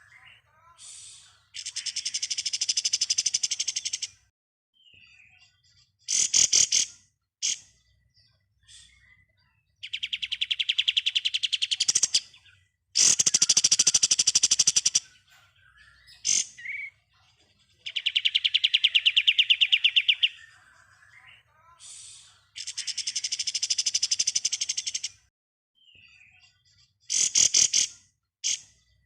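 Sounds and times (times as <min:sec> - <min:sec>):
songbird rapid trill: 0:01.6 - 0:04.1, 0:13.0 - 0:17.0, 0:17.9 - 0:20.5.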